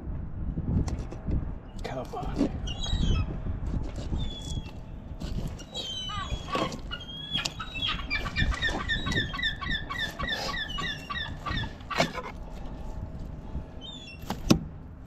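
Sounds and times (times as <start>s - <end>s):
bird chirping rapidly: 5.7s - 12.1s.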